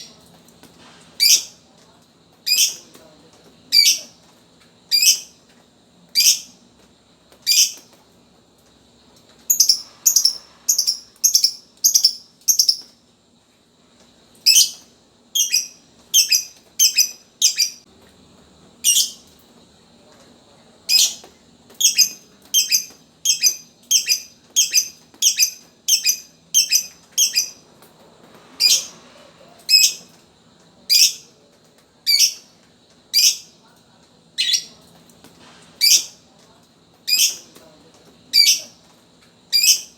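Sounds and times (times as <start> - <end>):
bird chirping: 9.5 - 12.9, 21.8 - 27.6.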